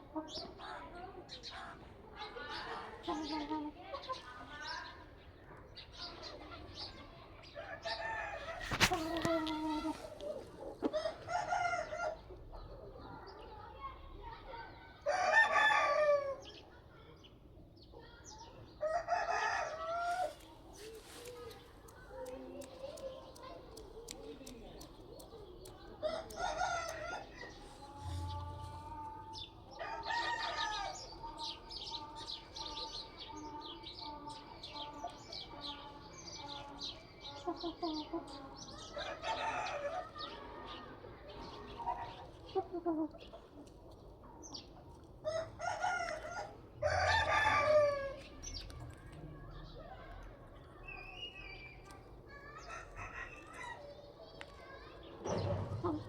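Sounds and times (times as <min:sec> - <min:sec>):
chickens chirping: 0:00.0 - 0:13.7, 0:17.9 - 0:56.0
rooster crowing: 0:45.3 - 0:48.2.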